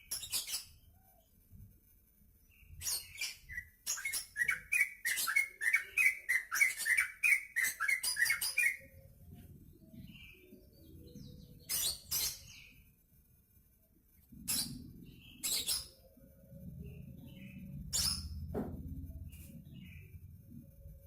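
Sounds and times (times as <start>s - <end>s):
bird singing chattering notes: 2.8s - 9.0s.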